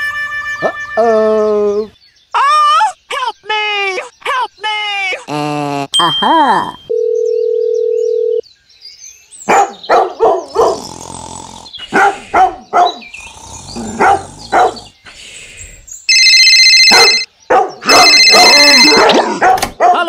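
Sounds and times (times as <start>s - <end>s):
dog barking: 9.5s - 10.8s, 11.9s - 13.1s, 14.0s - 14.9s, 16.9s - 20.0s
high-pitched tone: 17.9s - 19.1s.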